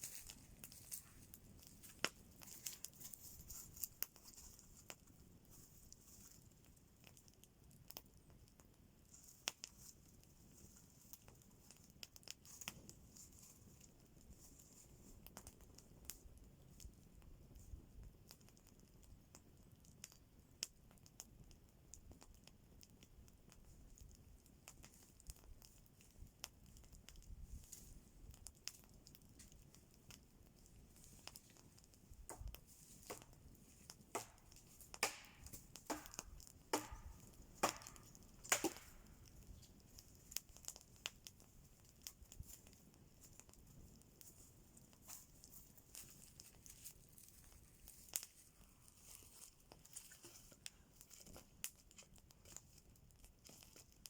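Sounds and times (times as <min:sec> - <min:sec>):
faint crackles and clicks: 0:00.0 - 0:54.0
loud snaps: 0:35.0 - 0:36.2.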